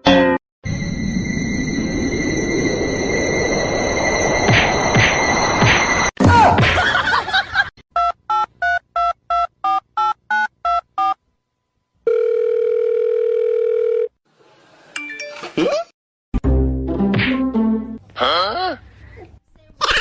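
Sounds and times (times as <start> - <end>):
telephone ringing tone: 12.0 - 14.2.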